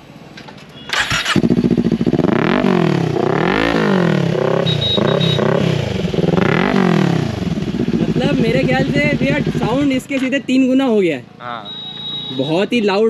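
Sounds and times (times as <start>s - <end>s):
motorcycle starter crank: 0.9s - 1.7s
motorcycle engine revving: 0.9s - 10.2s.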